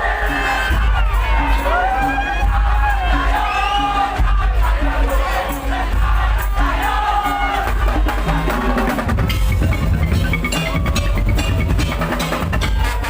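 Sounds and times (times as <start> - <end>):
heavy drums and percussion: 0.0 - 13.0
gliding melody line: 3.0 - 13.0.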